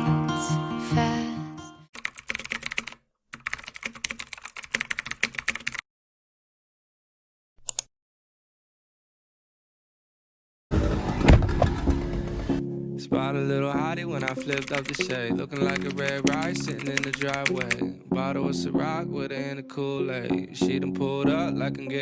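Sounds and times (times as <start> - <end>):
music: 0.0 - 1.9, 10.7 - 22.0
keyboard typing clicks: 2.0 - 5.8, 14.2 - 17.8.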